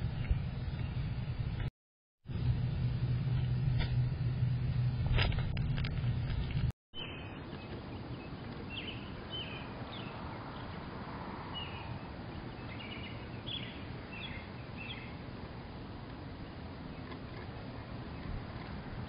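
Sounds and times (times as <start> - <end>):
low outdoor background noise: 2.3 - 19.0
small birds chirping: 6.4 - 19.0.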